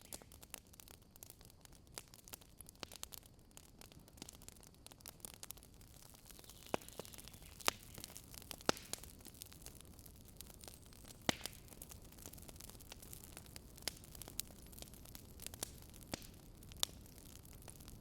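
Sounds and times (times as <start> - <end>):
campfire crackling: 0.0 - 18.0
louder fire pops: 4.2 - 18.0.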